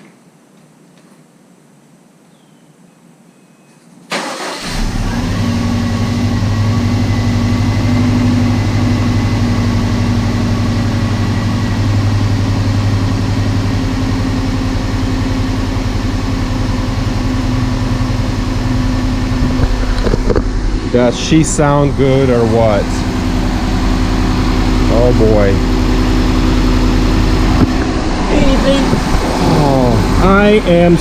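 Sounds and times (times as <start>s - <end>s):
car engine starting and idling: 4.1s - 31.0s
person talking: 20.9s - 23.1s, 28.2s - 31.0s.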